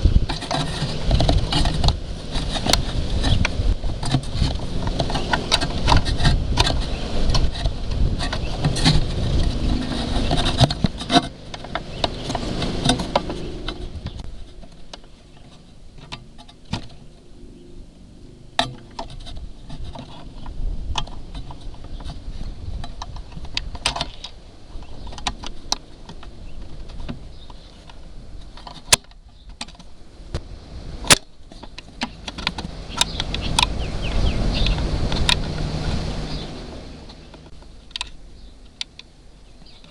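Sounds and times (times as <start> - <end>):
low rumble: 0.0 - 23.6
rustling: 0.0 - 39.9.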